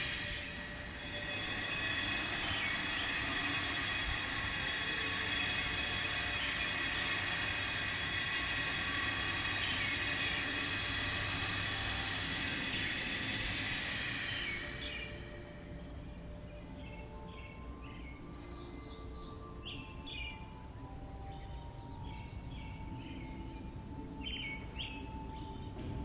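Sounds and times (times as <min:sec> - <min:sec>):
power grinder cutting stone: 0:00.0 - 0:15.2.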